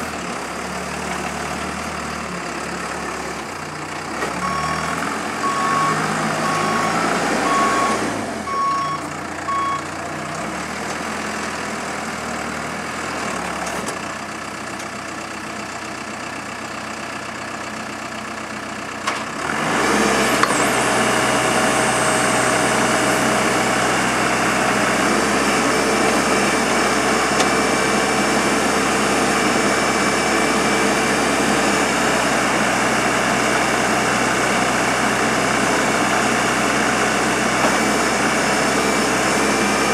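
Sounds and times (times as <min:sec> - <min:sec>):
engine whine: 0:00.0 - 0:12.0, 0:19.1 - 0:39.9
diesel engine running: 0:00.0 - 0:39.9
reversing alarm beeping: 0:04.4 - 0:09.9.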